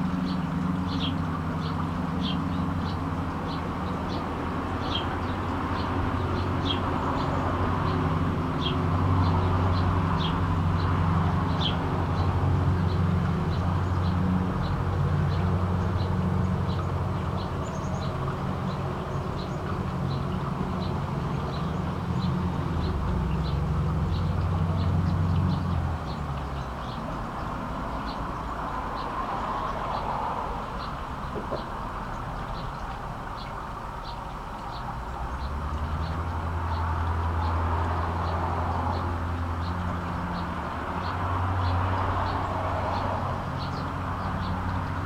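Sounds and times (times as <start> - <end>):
small birds chirping: 8.6 - 45.0.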